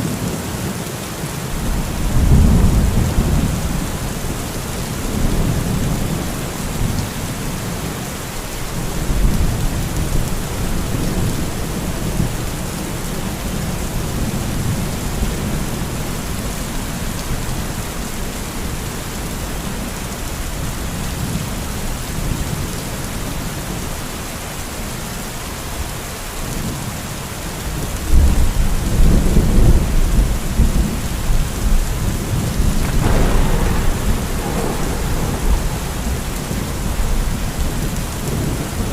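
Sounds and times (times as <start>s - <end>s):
steady rain: 0.0s - 38.9s
rolling thunder: 1.6s - 7.8s, 28.0s - 38.9s.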